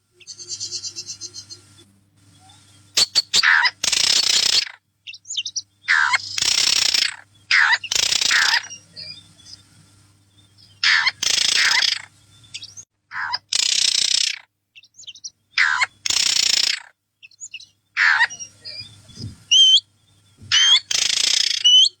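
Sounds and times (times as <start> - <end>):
small bird raspy calls: 0.2 - 22.0
short whistled bird notes: 3.0 - 3.4.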